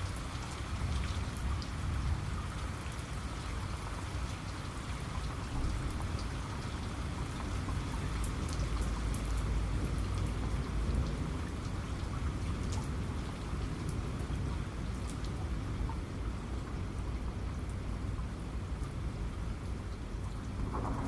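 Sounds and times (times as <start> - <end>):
rain falling: 0.0 - 21.0
raindrops tapping: 20.2 - 21.0
deep low rumble: 20.6 - 21.0.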